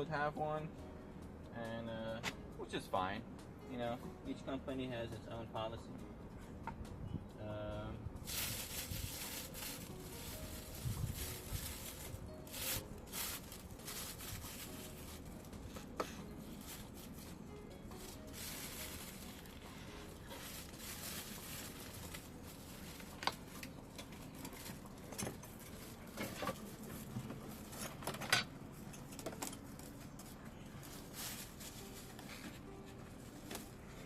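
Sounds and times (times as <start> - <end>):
packaging rustling: 8.3 - 15.6, 16.4 - 28.1, 29.4 - 32.7.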